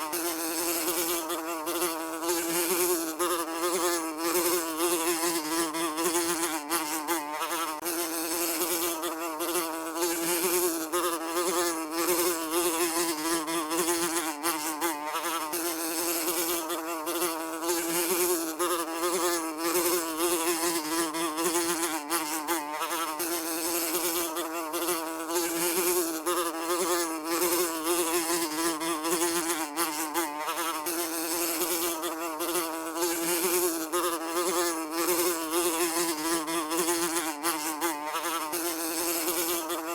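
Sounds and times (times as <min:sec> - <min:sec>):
fly buzzing: 0:00.0 - 0:39.9.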